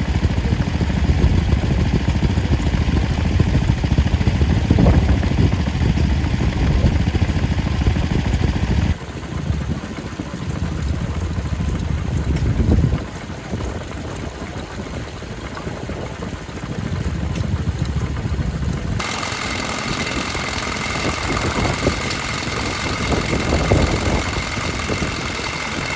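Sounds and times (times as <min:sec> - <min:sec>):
quieter engine running: 0:00.0 - 0:14.5, 0:15.6 - 0:25.9
stationary engines running: 0:18.2 - 0:25.9.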